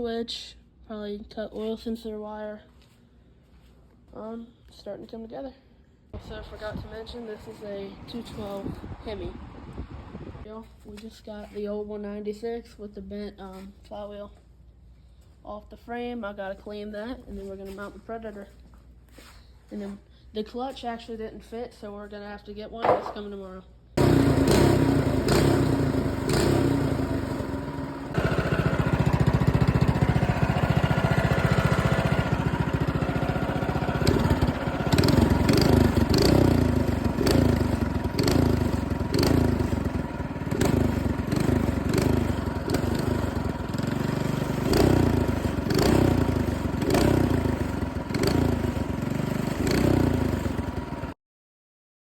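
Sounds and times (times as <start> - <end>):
small engine revving: 24.0 - 51.2.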